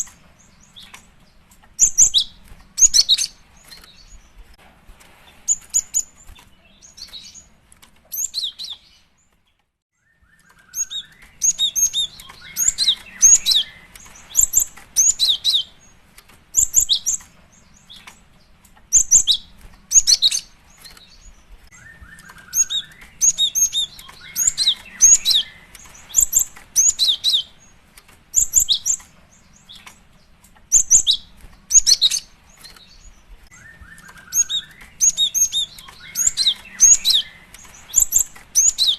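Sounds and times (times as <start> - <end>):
bird high-pitched chirps: 0.0 - 4.4, 5.5 - 7.5, 8.1 - 9.2, 9.9 - 38.9.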